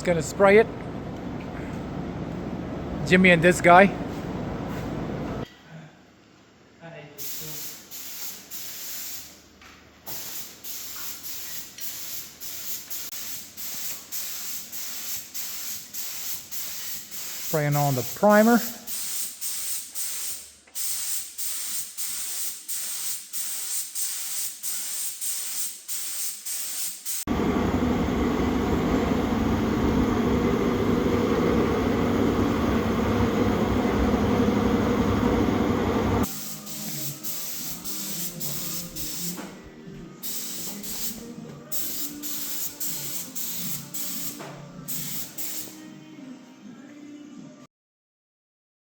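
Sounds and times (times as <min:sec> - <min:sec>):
spray gun hissing bursts: 0:07.2 - 0:09.4, 0:10.1 - 0:27.3, 0:36.2 - 0:39.4, 0:40.2 - 0:45.8
spray gun steady rush: 0:10.1 - 0:39.4, 0:40.2 - 0:45.7.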